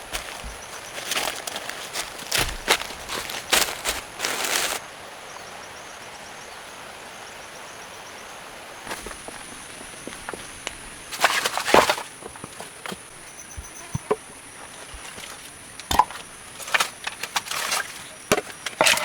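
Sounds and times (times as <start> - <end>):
leaf litter rustling and crunching: 0.0 - 4.8, 8.9 - 12.2, 14.5 - 19.0
faint repeated chirping: 13.1 - 14.7.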